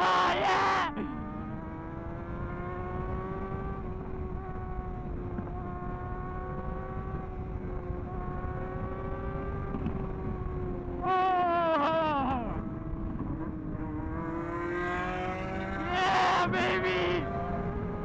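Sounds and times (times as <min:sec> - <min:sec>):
motorbike engine at high revs: 0:00.0 - 0:18.0.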